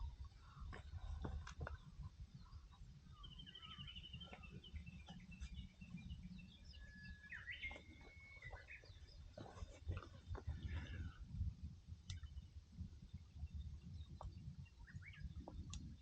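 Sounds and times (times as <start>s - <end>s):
birds chirping: 0.0s - 11.4s, 12.1s - 16.0s
bird trill: 2.4s - 9.2s.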